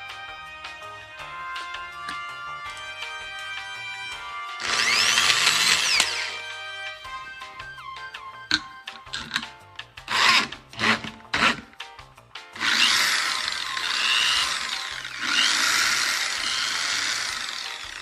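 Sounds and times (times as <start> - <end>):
background music: 0.0 - 18.0
rasping strokes: 0.7 - 7.6, 10.1 - 11.8, 12.6 - 18.0
power tool grinding: 1.2 - 7.4, 8.5 - 9.5, 10.1 - 11.8, 12.6 - 18.0.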